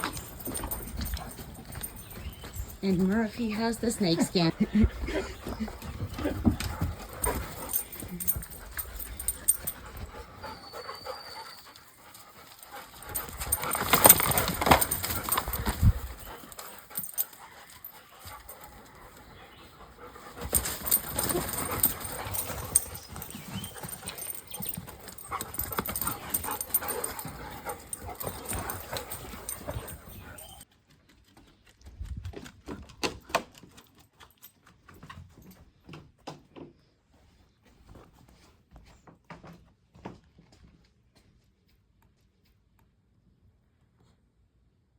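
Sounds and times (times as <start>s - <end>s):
dogs sniffing: 0.0s - 30.6s
scuffling and rustling: 20.3s - 30.6s.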